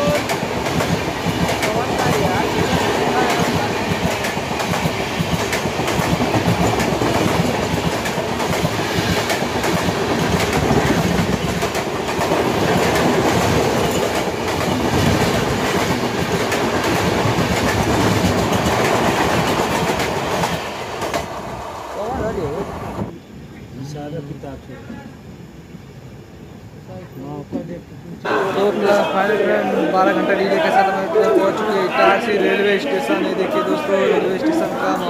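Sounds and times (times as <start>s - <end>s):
clickety-clack of train wheels: 0.0s - 21.4s
passing train rushing by: 0.0s - 24.3s, 25.2s - 35.0s
running noise of train: 0.0s - 35.0s.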